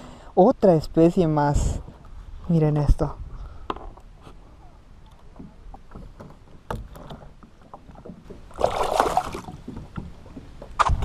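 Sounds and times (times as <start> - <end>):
water lapping against kayak: 3.2 - 11.0
loud water splash: 8.6 - 9.5.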